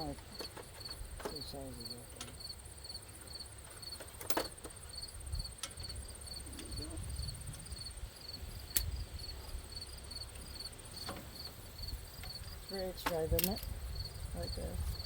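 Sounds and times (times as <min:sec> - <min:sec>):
crickets chirping: 0:00.0 - 0:15.0
sharp clicks: 0:08.7 - 0:08.9, 0:13.0 - 0:13.7.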